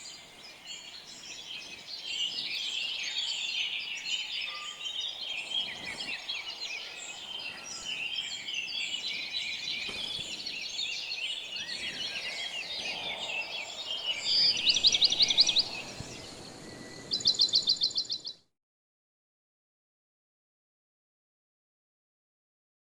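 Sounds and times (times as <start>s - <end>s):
birds chirping chorus: 0.0s - 18.4s
bird rapid trills: 9.6s - 18.2s.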